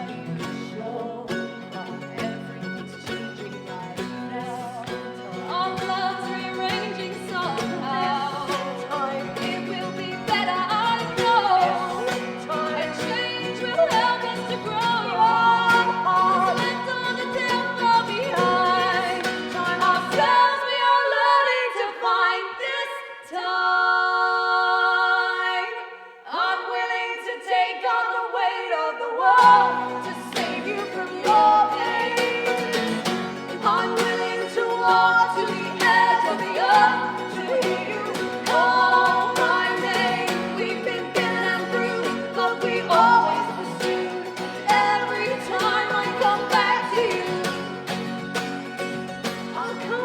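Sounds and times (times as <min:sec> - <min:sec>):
acoustic guitar: 0:00.0 - 0:50.0
voices singing in harmony: 0:00.0 - 0:50.0.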